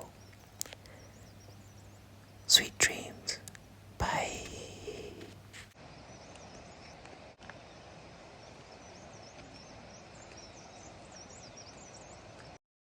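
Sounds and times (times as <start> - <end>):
birds chirping: 0.0 - 7.0
outdoor background hiss: 0.0 - 12.6.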